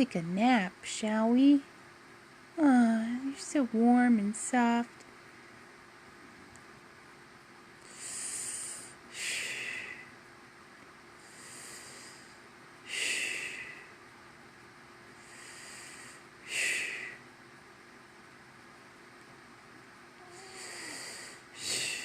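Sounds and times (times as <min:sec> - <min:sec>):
person breathing heavily: 0:07.8 - 0:10.2, 0:11.2 - 0:14.0, 0:15.2 - 0:17.2, 0:20.2 - 0:22.0.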